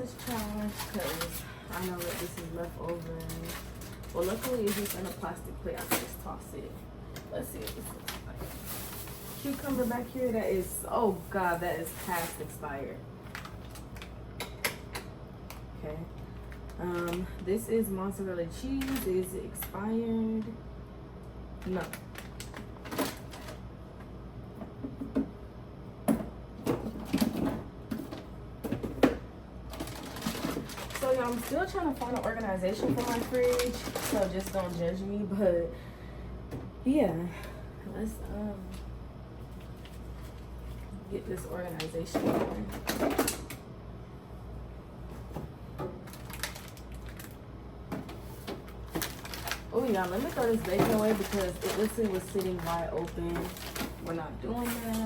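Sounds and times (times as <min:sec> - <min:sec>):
refrigerator low hum: 0:00.0 - 0:55.0
food containers knocking and clicking: 0:26.0 - 0:29.2
containers knocking and clicking: 0:47.9 - 0:55.0.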